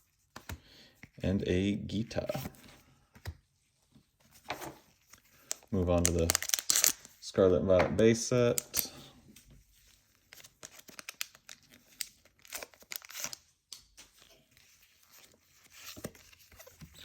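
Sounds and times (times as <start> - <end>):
foil wrapper tearing and crinkling: 5.1 - 7.1, 10.3 - 13.5.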